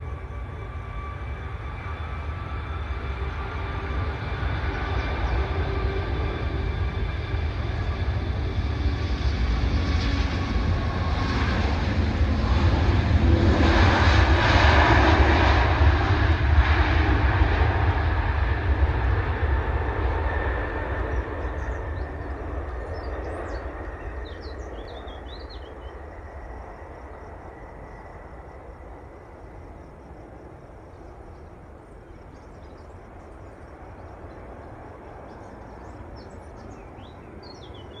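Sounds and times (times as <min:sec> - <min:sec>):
jet taking off: 0:00.0 - 0:38.0
faint birds chirping: 0:18.4 - 0:38.0.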